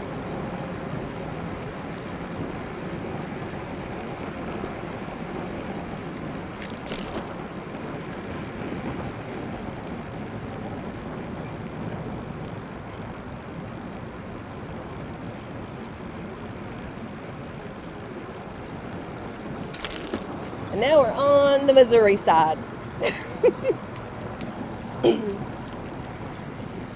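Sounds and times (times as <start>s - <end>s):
wind: 0.0s - 26.9s
tyre rumble: 6.6s - 7.4s, 19.5s - 21.6s.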